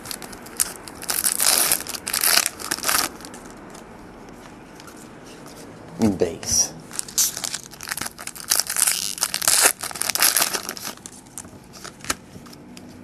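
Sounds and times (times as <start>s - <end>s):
foil wrapper crinkling and tearing: 0.0s - 3.8s, 6.9s - 12.2s.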